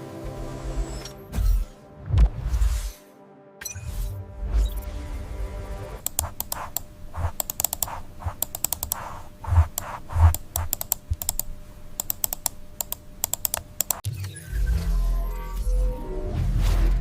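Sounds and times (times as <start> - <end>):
keyboard typing clicks: 6.0 - 14.0.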